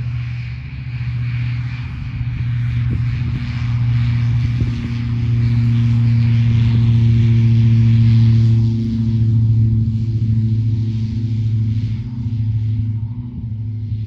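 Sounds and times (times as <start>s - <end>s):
propeller aircraft engine droning: 0.0s - 14.0s.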